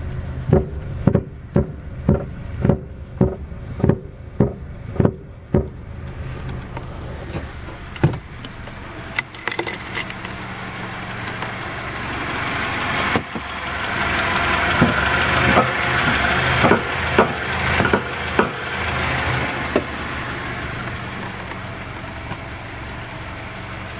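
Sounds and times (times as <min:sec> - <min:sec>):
car engine hum: 0:00.0 - 0:23.9
road noise: 0:00.0 - 0:23.9
suspension clunking: 0:00.0 - 0:23.9.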